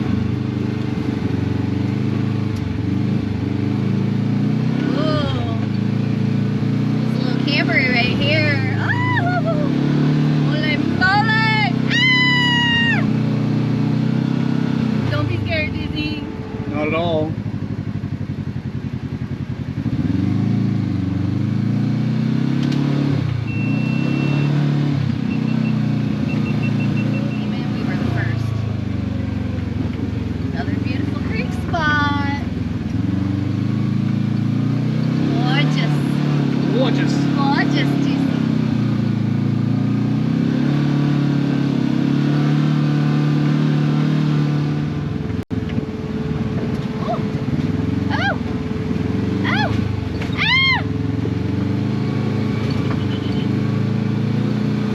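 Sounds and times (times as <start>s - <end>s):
utility vehicle engine revving: 0.0s - 54.9s
short high squeal: 23.5s - 24.6s.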